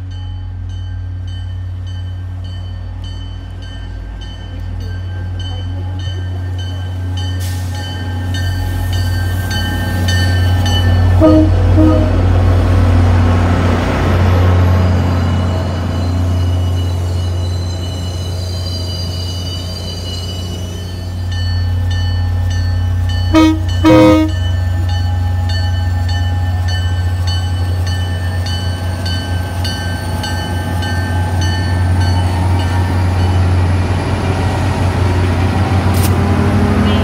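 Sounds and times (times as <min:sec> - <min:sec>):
train bell ringing: 0:00.0 - 0:12.1, 0:14.8 - 0:34.4
diesel locomotive engine droning: 0:00.0 - 0:37.0
train horn blasts: 0:11.1 - 0:12.5, 0:23.3 - 0:24.6, 0:36.4 - 0:37.0.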